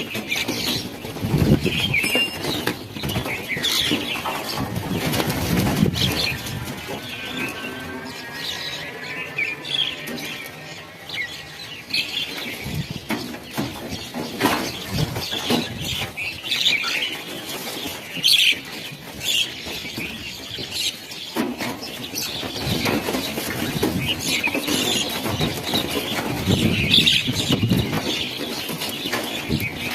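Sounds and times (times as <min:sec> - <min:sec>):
wingbeats fluttering: 0:00.0 - 0:18.6
small birds chirping: 0:00.0 - 0:29.9.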